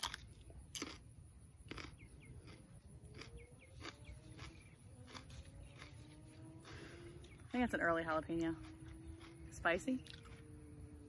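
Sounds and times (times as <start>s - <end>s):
pepper being chewed: 0.0s - 7.5s, 8.4s - 10.4s
faint bird chirps: 3.3s - 7.9s.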